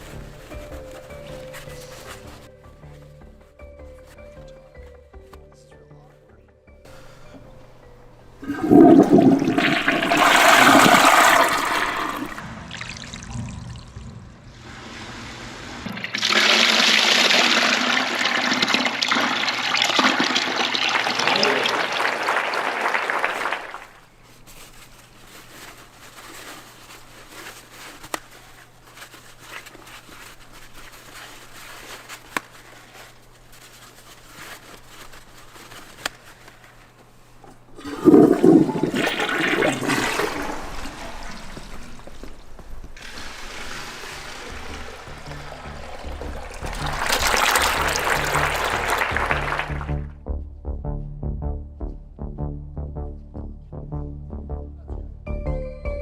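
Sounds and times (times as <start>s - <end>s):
water trickling: 8.3s - 14.7s, 37.8s - 49.0s
toilet flushing water rush: 8.4s - 24.0s, 37.8s - 50.0s.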